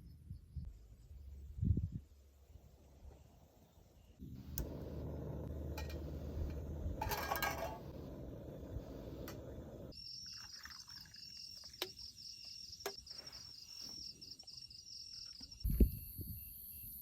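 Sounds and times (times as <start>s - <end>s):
insects trilling: 9.9s - 17.0s.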